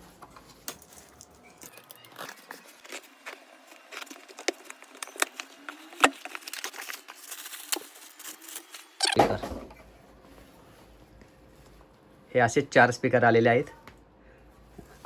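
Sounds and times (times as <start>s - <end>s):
cardboard packaging rustling and tearing: 0.0s - 9.2s.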